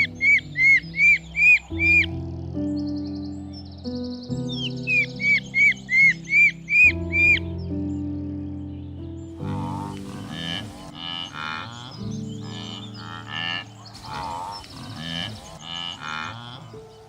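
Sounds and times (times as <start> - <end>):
short animal calls: 0.0 - 2.1
music with held low notes: 0.0 - 17.0.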